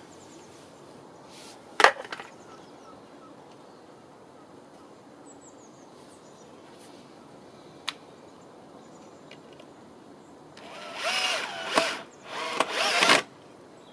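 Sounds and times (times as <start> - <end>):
faint high bird chirps: 2.3 - 6.6.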